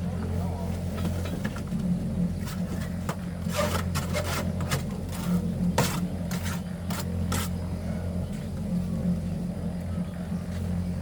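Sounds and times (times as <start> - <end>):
low machine hum: 0.0 - 11.0
scraping and rubbing strokes: 2.4 - 7.6.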